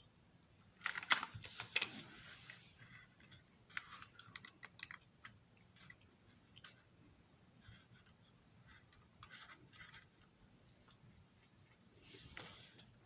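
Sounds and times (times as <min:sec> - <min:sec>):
plastic parts clicking and rustling: 0:00.7 - 0:06.0.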